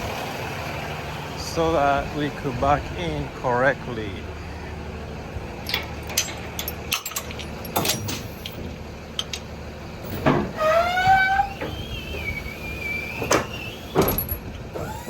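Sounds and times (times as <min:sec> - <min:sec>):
metal clanks and knocks: 0:05.6 - 0:11.8
short rising whine: 0:10.6 - 0:15.0.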